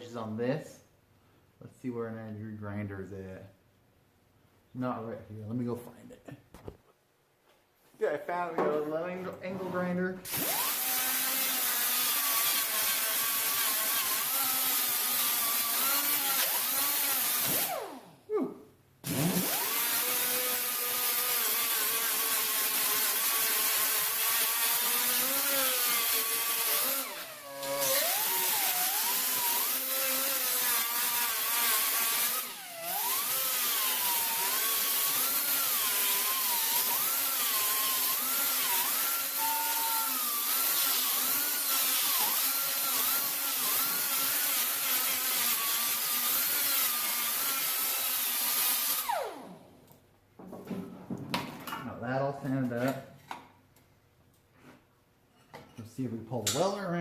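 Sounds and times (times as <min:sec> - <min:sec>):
angle grinder grinding metal: 0:09.5 - 0:18.0, 0:19.1 - 0:49.6.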